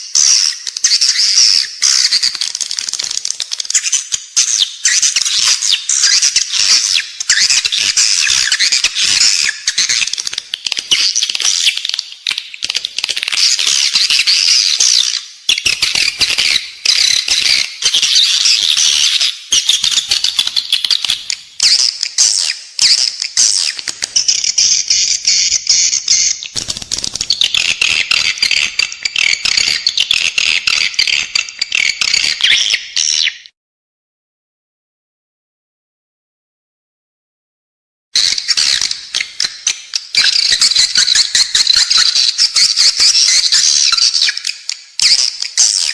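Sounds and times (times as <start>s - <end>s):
rapid bird clicks: 2.2s - 3.8s, 26.5s - 31.5s.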